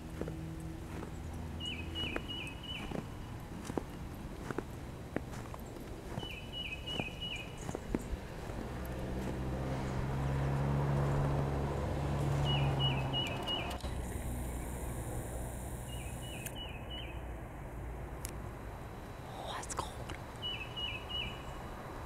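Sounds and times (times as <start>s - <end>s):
songbird singing: 0.0s - 17.4s, 18.2s - 22.0s
low drone: 7.4s - 20.3s.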